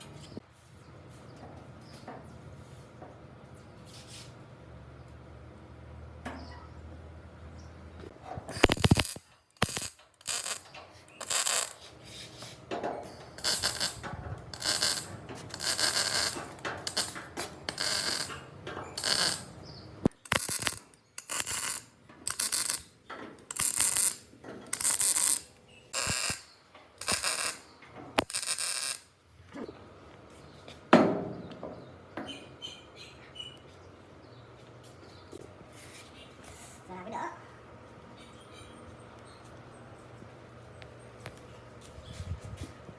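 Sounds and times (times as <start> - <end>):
short scraping strokes: 11.2 - 12.6.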